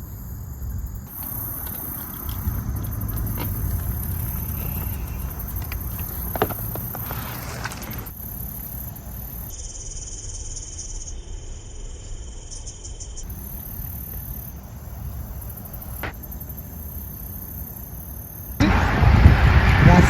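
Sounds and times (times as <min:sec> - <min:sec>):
insects trilling: 0:00.0 - 0:18.7
wind rumble on microphone: 0:18.6 - 0:20.0.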